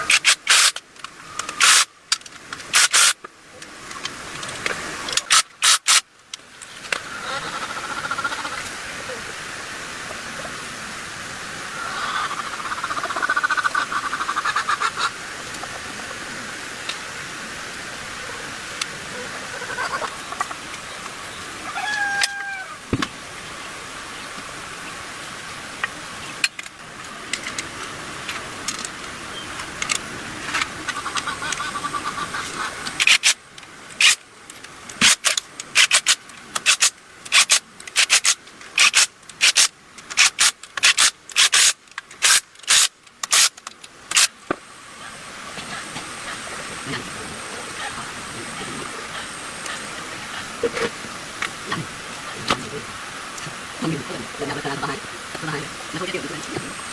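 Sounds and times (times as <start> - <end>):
compressed-air spray hissing: 0.1 - 0.8, 1.6 - 1.9, 2.7 - 3.2, 5.3 - 6.0, 35.0 - 43.5.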